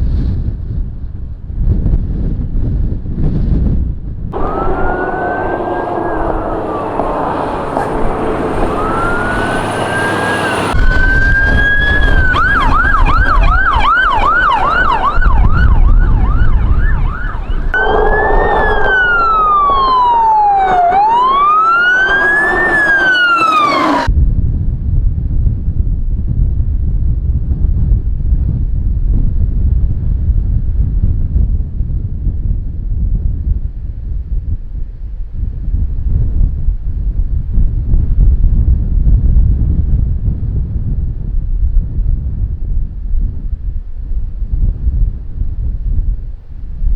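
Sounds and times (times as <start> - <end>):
wind rumble: 0.0 - 46.9
emergency vehicle sirens: 4.4 - 24.1.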